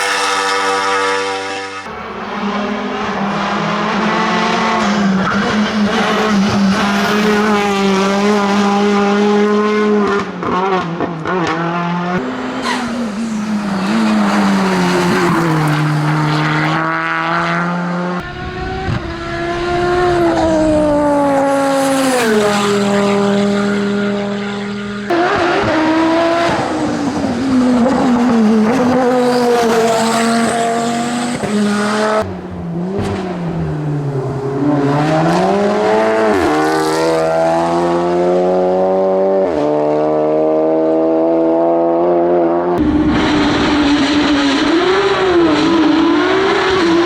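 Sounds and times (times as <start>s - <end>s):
racing car engine revving: 0.0s - 47.0s.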